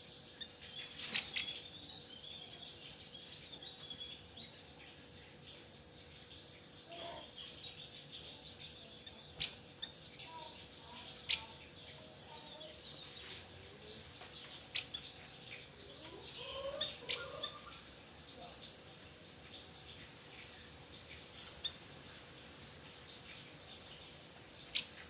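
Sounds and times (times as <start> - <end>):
bird chirping: 0.3 - 5.0, 6.9 - 18.6
bird warbling: 0.4 - 4.6, 6.9 - 12.9, 13.8 - 17.9.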